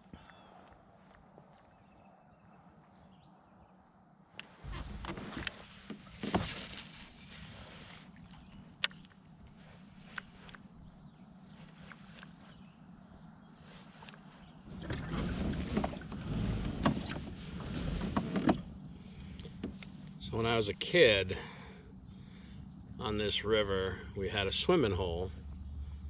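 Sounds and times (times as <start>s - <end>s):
faint high whine: 1.5s - 26.0s.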